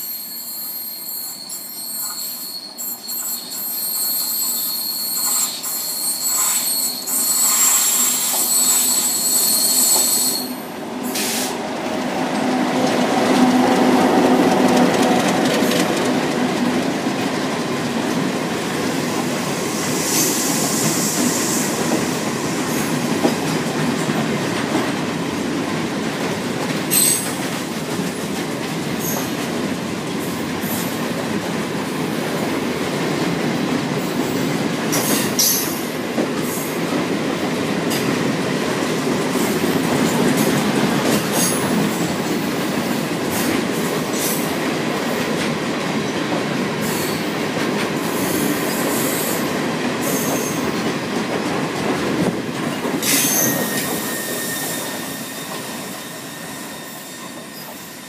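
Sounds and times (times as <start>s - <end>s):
wheel squeal: 0.0s - 10.7s, 53.0s - 58.0s.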